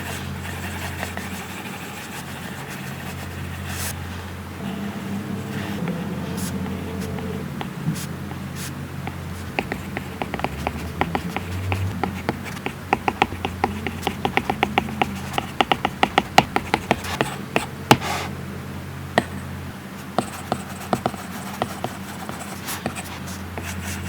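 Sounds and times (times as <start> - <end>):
stylus scratchy stroke: 0.0 - 12.0
low steady hum: 0.0 - 24.0.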